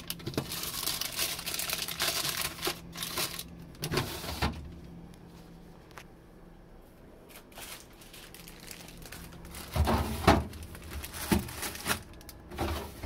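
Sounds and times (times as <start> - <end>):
plastic packaging crinkling: 0.0 - 4.3, 7.3 - 13.0.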